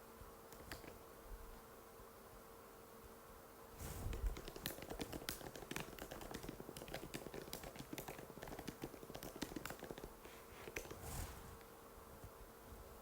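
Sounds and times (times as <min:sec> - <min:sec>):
faint steady hum: 0:00.0 - 0:13.0
fast keyboard typing: 0:04.1 - 0:11.0.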